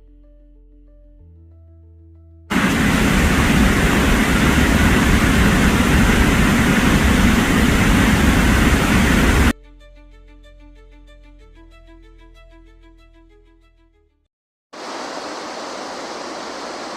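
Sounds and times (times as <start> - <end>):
waterfall rushing: 2.5 - 9.5, 14.8 - 16.9.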